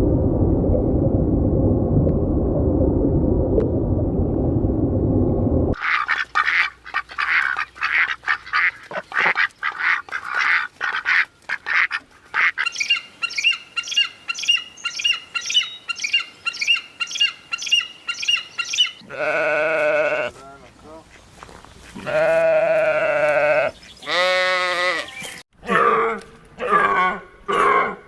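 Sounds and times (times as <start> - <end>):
poultry calling: 5.8 - 20.4, 21.8 - 25.8
sheep or goat bleat: 19.0 - 20.3, 22.0 - 26.9.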